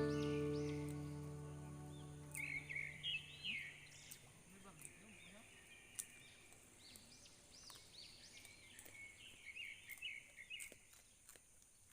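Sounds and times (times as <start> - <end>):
faint steady high hiss: 0.0 - 4.7
small birds chirping: 0.0 - 11.9.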